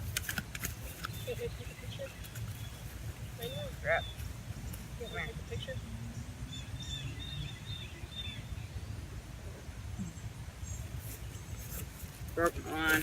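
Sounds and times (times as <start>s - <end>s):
small bird chirping: 0.8s - 9.0s.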